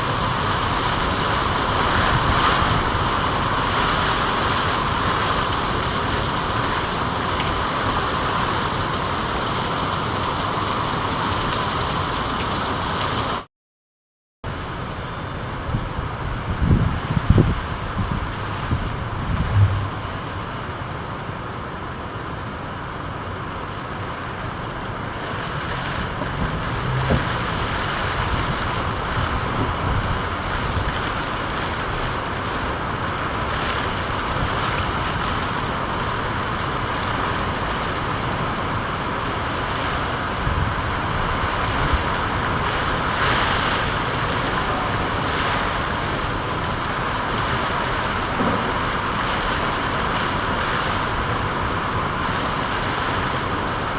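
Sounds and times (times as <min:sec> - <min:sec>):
steady rain: 0:00.0 - 0:13.5, 0:14.5 - 0:53.9
low rumbles: 0:15.5 - 0:21.3, 0:25.2 - 0:31.6.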